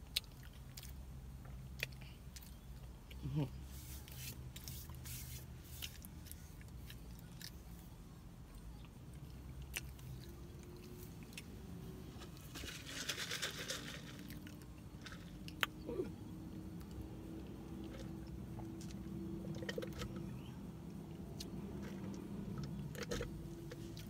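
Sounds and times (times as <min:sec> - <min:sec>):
person chewing food: 0:00.0 - 0:03.4.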